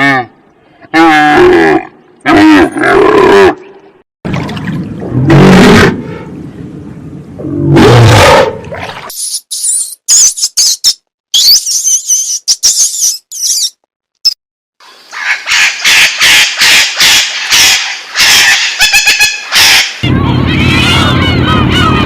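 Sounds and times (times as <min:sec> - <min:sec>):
high bird chirps and twitters: 0:09.2 - 0:14.4
loud harsh bird squawks: 0:15.1 - 0:22.0.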